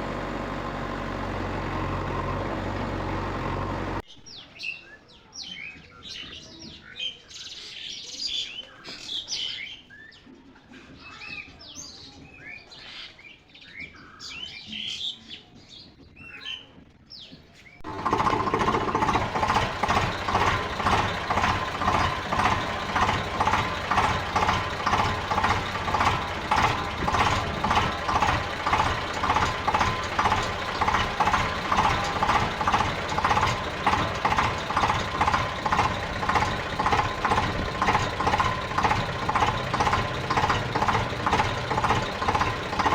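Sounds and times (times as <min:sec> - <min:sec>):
engine running loudly: 0:00.0 - 0:04.0, 0:17.8 - 0:42.9.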